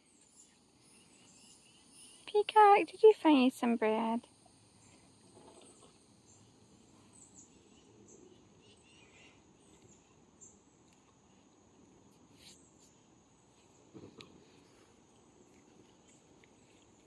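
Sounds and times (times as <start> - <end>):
high-pitched insect calls: 0.0 - 11.4.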